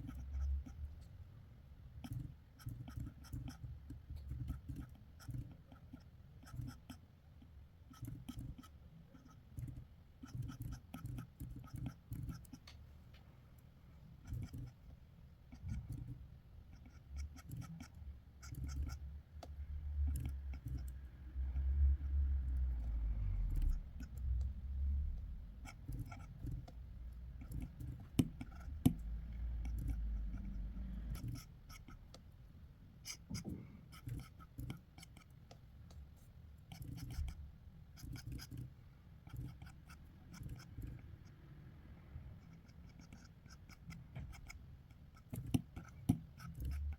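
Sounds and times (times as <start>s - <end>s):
drawing tool scratching on paper: 0.0s - 0.9s, 2.0s - 7.0s, 7.8s - 12.7s, 14.2s - 19.1s, 20.0s - 32.2s, 33.0s - 35.5s, 36.6s - 41.4s, 42.4s - 46.9s
light ticks of pen on paper: 2.0s - 7.0s, 7.9s - 12.8s, 25.6s - 26.8s, 27.4s - 32.3s.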